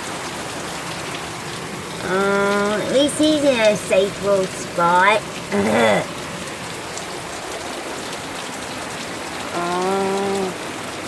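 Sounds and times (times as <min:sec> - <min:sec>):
steady rain falling: 0:00.0 - 0:11.0
person humming: 0:02.0 - 0:02.9, 0:05.5 - 0:06.1, 0:09.6 - 0:10.6.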